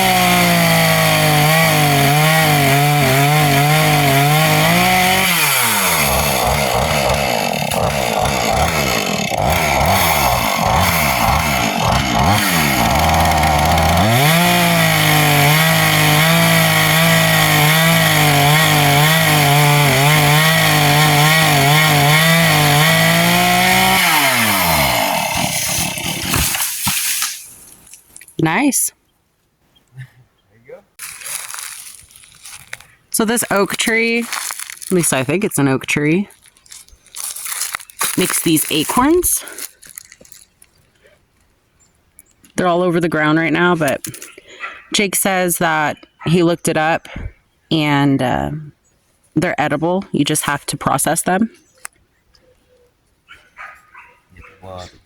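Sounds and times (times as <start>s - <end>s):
chainsaw running: 0.0s - 27.8s, 31.0s - 35.7s, 36.3s - 40.5s.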